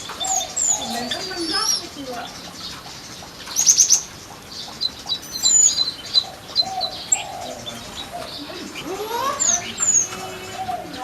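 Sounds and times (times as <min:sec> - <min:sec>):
small birds chirping: 0:00.0 - 0:11.0
lower whistled bird notes: 0:05.2 - 0:11.0.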